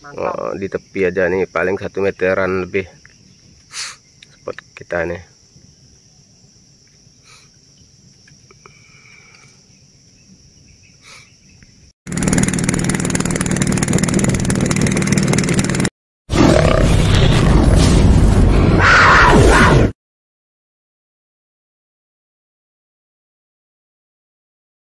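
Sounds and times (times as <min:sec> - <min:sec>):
insect chirring: 0:00.0 - 0:12.0.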